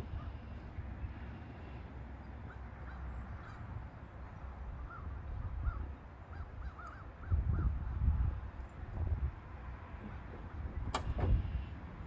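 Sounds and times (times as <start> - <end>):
birds calling: 0.0 - 8.0.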